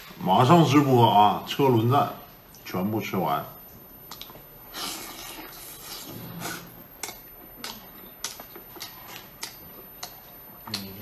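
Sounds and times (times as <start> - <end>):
person chewing: 4.0 - 11.0
wet mouth clicks and smacks: 4.1 - 4.4.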